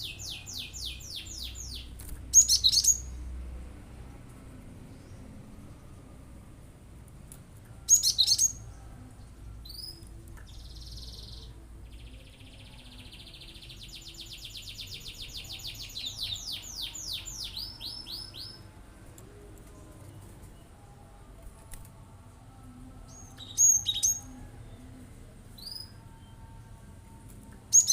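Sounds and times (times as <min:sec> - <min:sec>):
bird singing high trills: 0:00.0 - 0:03.1, 0:23.1 - 0:24.4.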